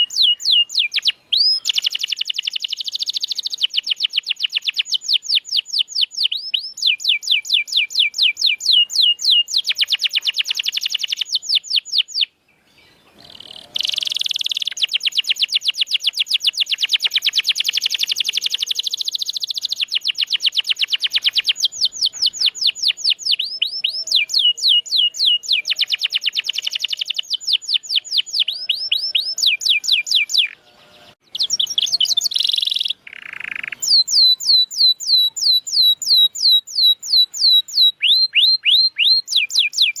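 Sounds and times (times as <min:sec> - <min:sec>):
canary singing trills: 0:00.0 - 0:40.0.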